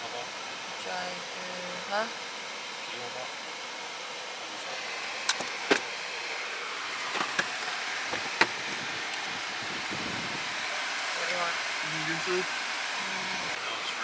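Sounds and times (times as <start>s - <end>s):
car road noise: 3.6s - 14.0s.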